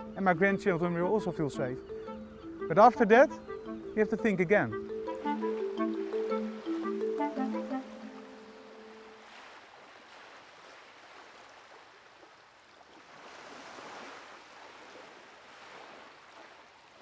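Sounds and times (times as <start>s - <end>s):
water waves lapping: 4.7s - 17.0s.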